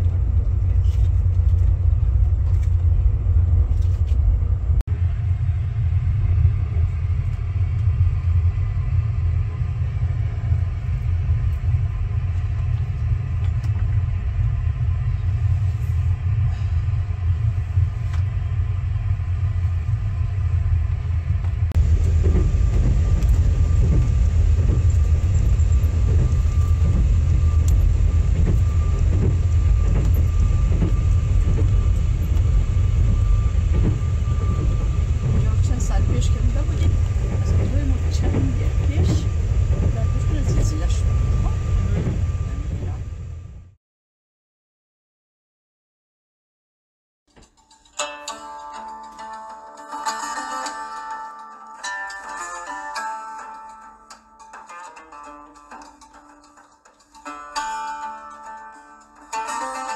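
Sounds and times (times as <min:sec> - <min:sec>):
faint steady whine: 0:00.0 - 0:43.7
train rumble inside carriage: 0:00.0 - 0:43.8.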